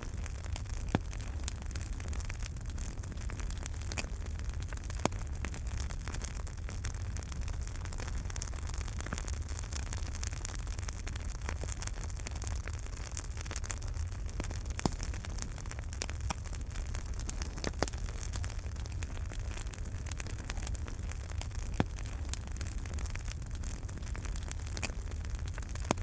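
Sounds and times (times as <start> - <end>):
fire low rumble: 0.0 - 26.0
sharp fire pops: 0.0 - 26.0
wood fire crackling: 0.0 - 26.0.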